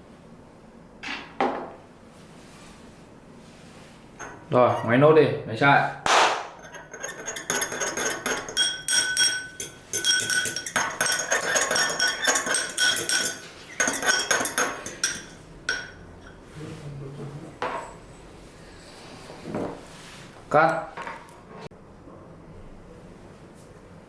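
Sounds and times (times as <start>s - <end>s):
utensil clinking and scraping in bowl: 4.2s - 5.0s, 6.6s - 16.6s.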